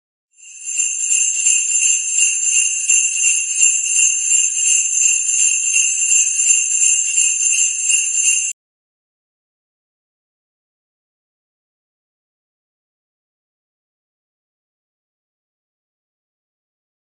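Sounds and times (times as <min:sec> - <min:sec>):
jingle bells shaking: 0:00.4 - 0:08.6.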